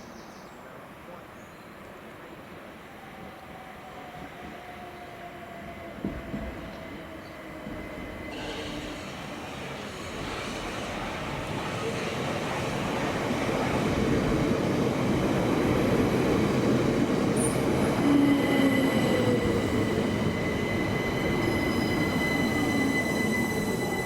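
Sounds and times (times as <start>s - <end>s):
train wheels rumbling on rails: 3.0s - 24.0s
high wheel squeal: 18.0s - 24.0s.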